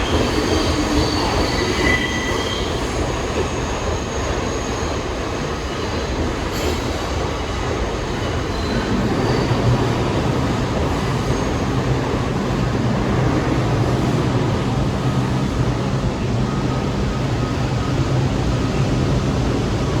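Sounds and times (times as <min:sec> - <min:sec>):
subway train rumbling: 0:00.0 - 0:20.0.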